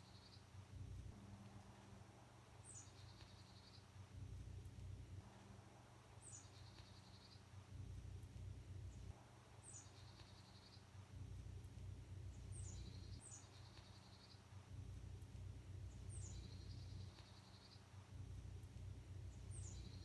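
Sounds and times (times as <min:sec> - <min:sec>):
faint bird calls and trill: 0:00.0 - 0:20.0
low steady hum: 0:00.0 - 0:20.0.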